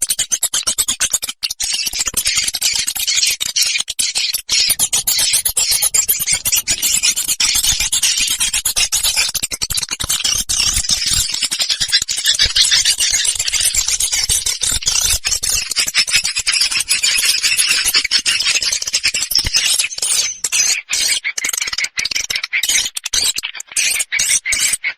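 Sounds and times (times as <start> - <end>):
swiftlets twittering: 4.4 - 9.3.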